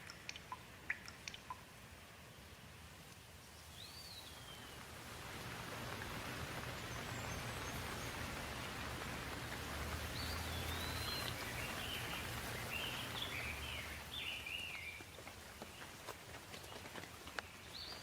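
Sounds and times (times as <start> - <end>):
steady rain falling: 0.0 - 18.0
songbird warbling: 10.1 - 15.0.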